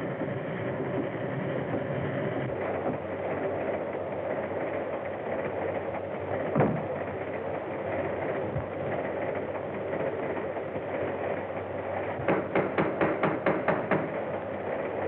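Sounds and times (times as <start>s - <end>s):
film soundtrack hiss and hum: 0.0s - 15.0s
knocking on a door: 12.3s - 14.1s.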